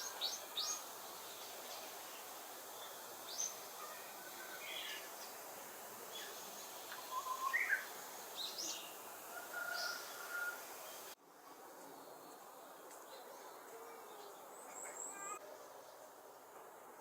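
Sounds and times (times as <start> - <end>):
steady outdoor hiss: 0.0 - 17.0
birds chirping and whistling: 7.0 - 8.9.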